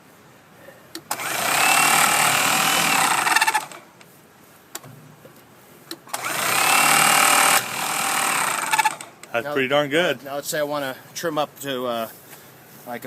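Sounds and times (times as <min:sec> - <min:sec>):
stone trimmer whining: 0:01.1 - 0:03.9, 0:06.1 - 0:09.3.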